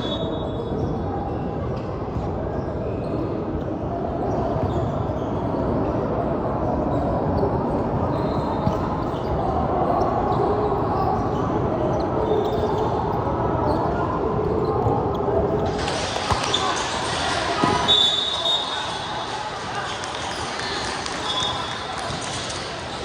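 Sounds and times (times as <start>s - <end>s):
echoing crowd voices: 0.0s - 23.0s
basketball bouncing on court: 15.7s - 17.0s.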